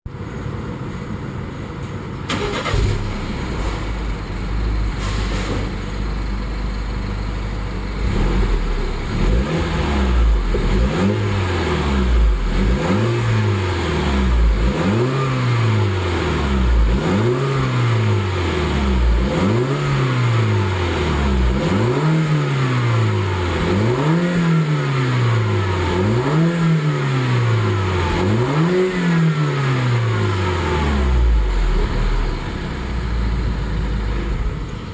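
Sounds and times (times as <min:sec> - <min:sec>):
car engine idling: 0:00.1 - 0:05.0, 0:05.6 - 0:28.6, 0:29.4 - 0:34.9
car engine revving: 0:07.9 - 0:34.4.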